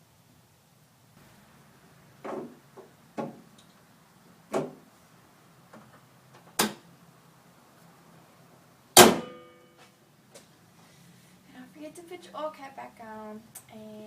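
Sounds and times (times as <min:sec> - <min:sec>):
objects knocking and clunking: 0:02.2 - 0:03.6
loud ringing metallic clank: 0:09.0 - 0:09.8.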